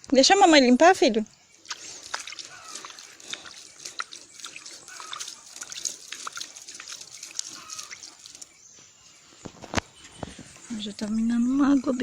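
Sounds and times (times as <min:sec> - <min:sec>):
water dripping: 0:00.0 - 0:12.0
hands splashing water: 0:01.5 - 0:08.6.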